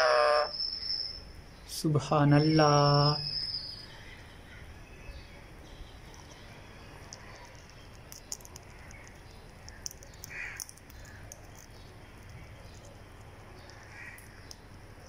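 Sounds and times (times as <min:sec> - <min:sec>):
raspy bird call: 0:00.0 - 0:00.6
faint clicks: 0:06.0 - 0:14.7.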